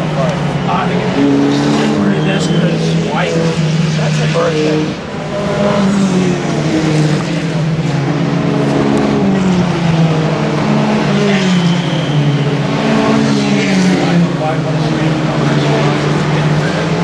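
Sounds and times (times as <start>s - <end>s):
race car engine running: 0.0s - 17.0s.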